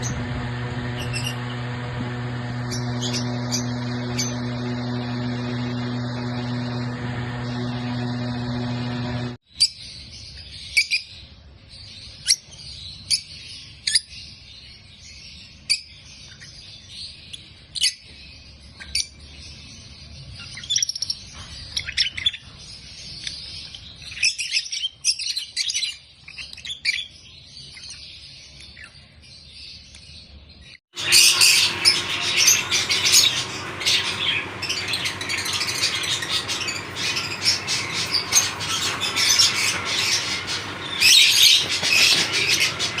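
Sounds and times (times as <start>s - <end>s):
lovebirds chirping: 0.0s - 9.3s, 31.0s - 43.0s.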